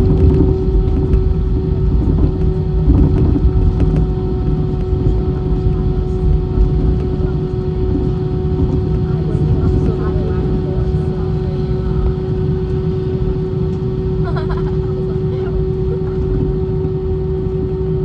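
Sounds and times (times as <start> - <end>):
aircraft engine roar in cabin: 0.0 - 18.0.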